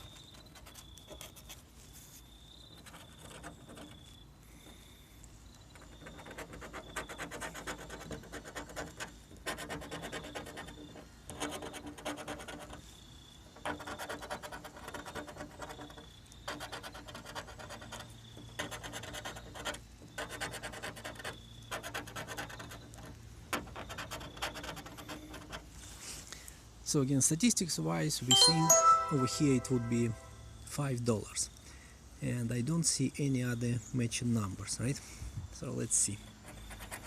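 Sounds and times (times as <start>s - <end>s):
scratching lottery tickets: 13.6s - 25.7s.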